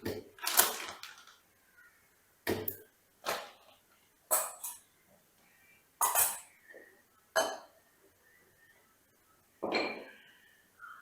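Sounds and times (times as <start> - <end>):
dishes and utensils clinking: 4.3 - 4.9, 9.6 - 10.2.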